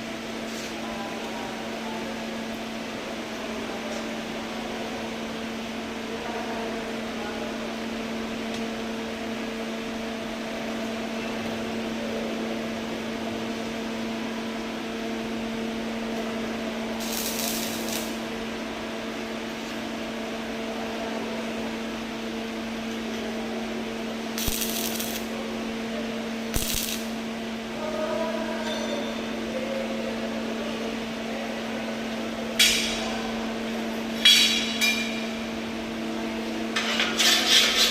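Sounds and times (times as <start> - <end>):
machine hum: 9.0 - 28.6.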